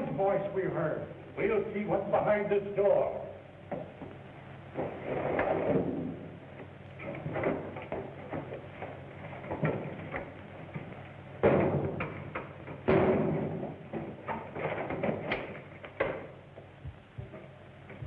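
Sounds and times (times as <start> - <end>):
heavy door bangs: 11.4 - 16.2.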